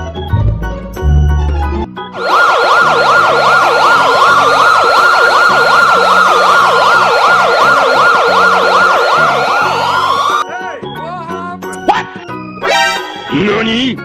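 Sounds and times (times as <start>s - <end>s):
rapid electronic siren: 1.2s - 10.4s
slower siren wail: 1.4s - 10.4s.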